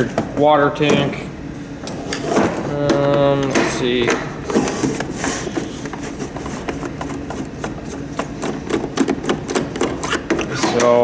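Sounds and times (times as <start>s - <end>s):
clicks and taps of handling tools: 6.6s - 11.0s.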